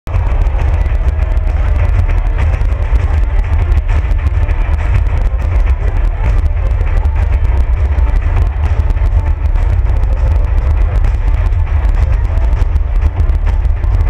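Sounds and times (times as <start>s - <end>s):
deep rumble: 0.0s - 14.0s
fireworks bangs and crackles: 0.1s - 14.0s.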